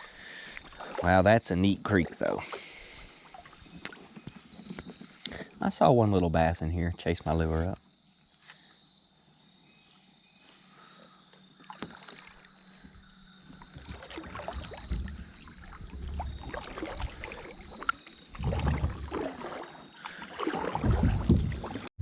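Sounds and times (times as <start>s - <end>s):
kayak paddling: 0.0s - 5.8s, 10.6s - 21.9s
water sounds: 0.0s - 6.5s, 11.4s - 22.0s
low bumps: 12.8s - 19.2s, 20.8s - 21.9s.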